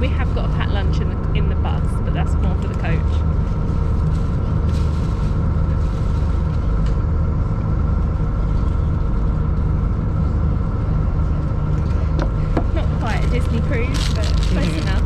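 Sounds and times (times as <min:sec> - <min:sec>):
boat engines droning: 0:00.0 - 0:15.0.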